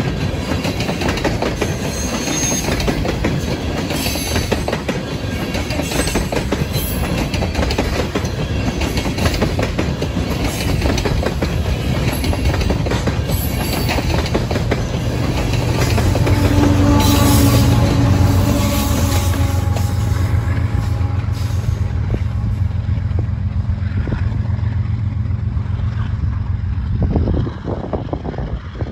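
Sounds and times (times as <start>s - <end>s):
wheels clicking over rail joints: 0.0s - 21.2s
diesel locomotive engine hum: 0.0s - 28.9s
train rumble: 0.0s - 28.9s.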